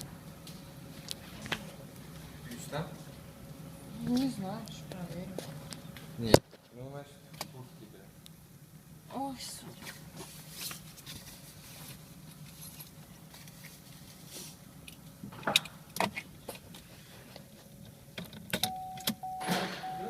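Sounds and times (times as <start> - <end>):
car keys jangling: 18.2 - 20.0
car warning chime: 18.6 - 20.0.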